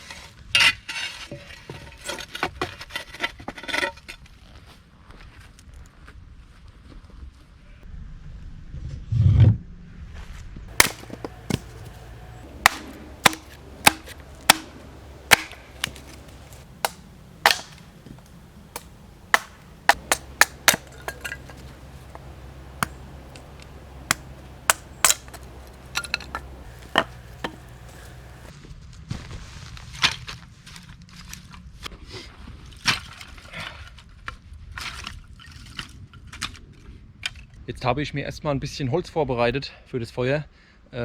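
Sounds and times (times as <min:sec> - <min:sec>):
axe chopping firewood: 0:10.7 - 0:28.5.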